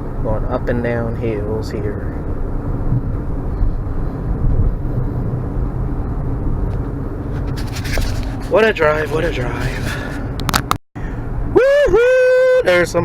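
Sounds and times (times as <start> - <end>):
car cabin road and engine rumble: 0.0 - 13.0.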